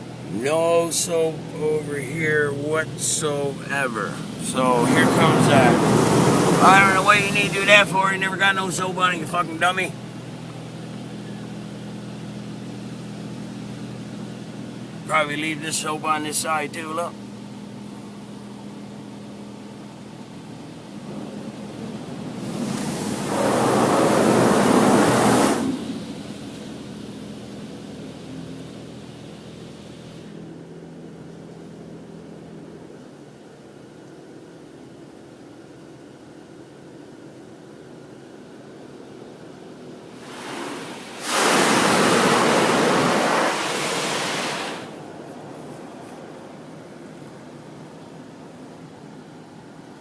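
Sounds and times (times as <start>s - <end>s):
car wash water jets rushing: 0.0s - 11.1s, 13.2s - 18.3s, 19.8s - 30.5s, 40.0s - 50.0s
faint steady hiss: 0.0s - 11.5s
steady low hum: 0.0s - 50.0s
high-pressure water jets hissing: 2.2s - 9.8s, 22.4s - 26.9s, 40.1s - 45.0s.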